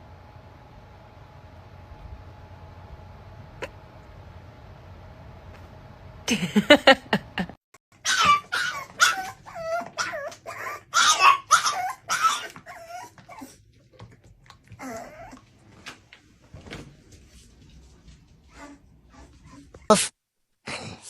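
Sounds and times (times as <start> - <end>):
dog yipping and whining: 8.0 - 13.6, 14.7 - 15.4.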